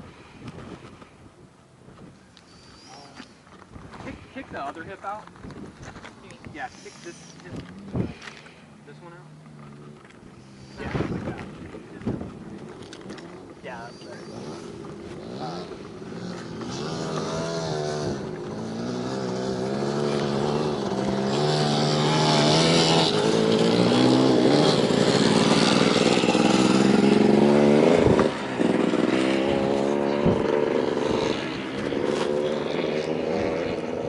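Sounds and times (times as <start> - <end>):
motorcycle engine running: 9.2 - 34.0.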